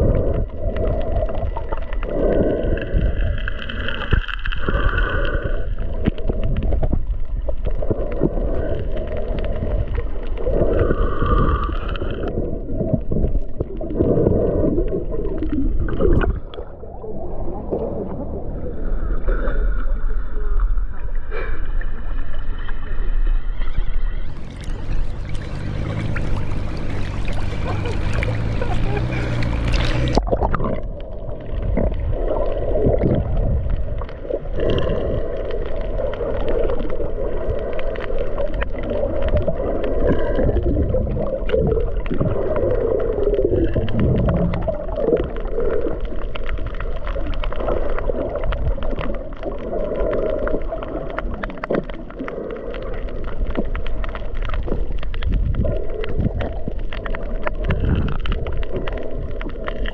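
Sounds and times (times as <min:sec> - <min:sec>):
muffled water churning and bubbling: 0:00.0 - 0:59.9
water splashing at surface: 0:24.0 - 0:59.9.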